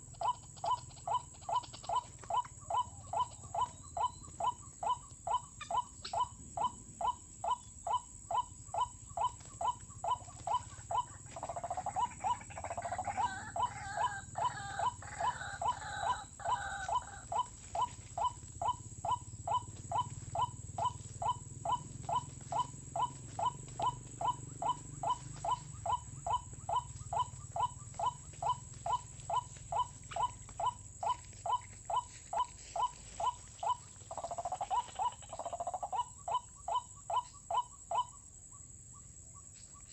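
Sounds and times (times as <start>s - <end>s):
waterhen calling: 8.8s - 36.2s.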